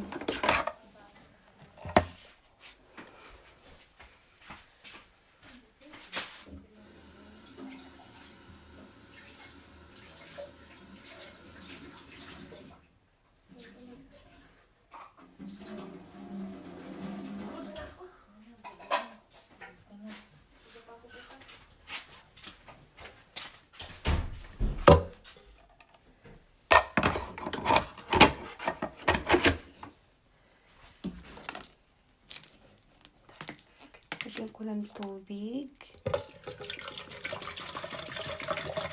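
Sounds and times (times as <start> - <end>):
tap water running: 6.6 - 12.9, 15.2 - 17.9, 35.9 - 38.9.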